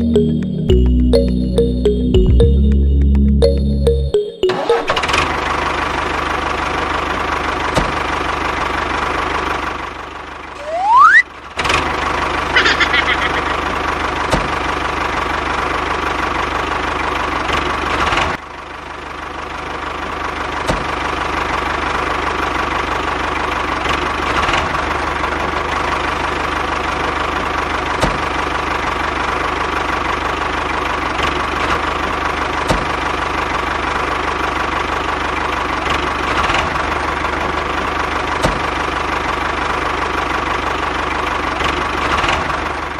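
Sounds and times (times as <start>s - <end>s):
rising whistle-like glide: 10.6s - 11.2s
small engine running: 10.6s - 18.1s.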